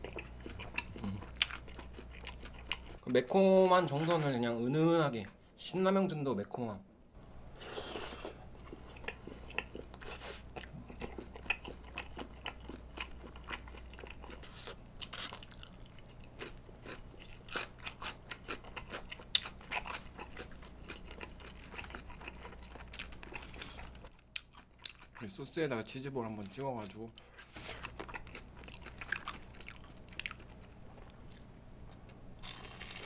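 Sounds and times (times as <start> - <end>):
crunchy wet chewing: 0.0 - 3.1, 7.8 - 25.3, 26.5 - 31.5.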